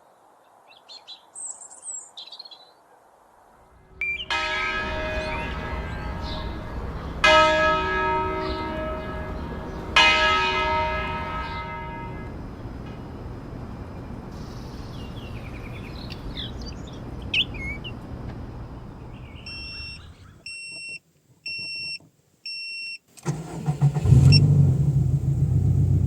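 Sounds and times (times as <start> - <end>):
small birds chirping: 0.1 - 2.8, 4.0 - 4.4, 14.0 - 22.0
church bell ringing: 3.9 - 12.7.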